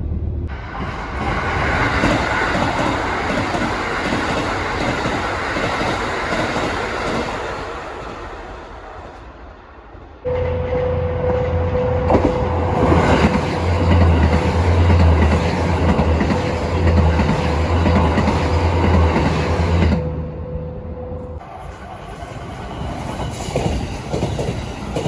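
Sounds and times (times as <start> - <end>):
low rumble and hum: 0.0 - 0.6
train wheels clattering: 0.7 - 9.2, 12.1 - 20.0, 21.4 - 25.0.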